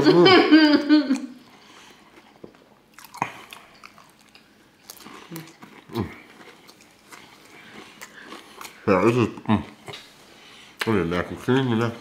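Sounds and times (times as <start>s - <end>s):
chewing and lip smacks: 2.1s - 8.8s.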